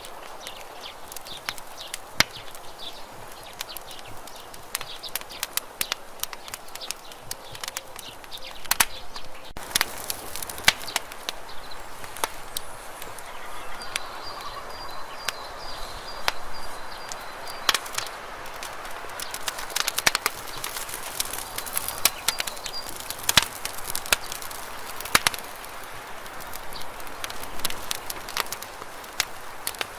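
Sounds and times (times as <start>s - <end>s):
campfire crackling and popping: 0.0s - 29.9s
low hiss of flame: 0.0s - 29.9s.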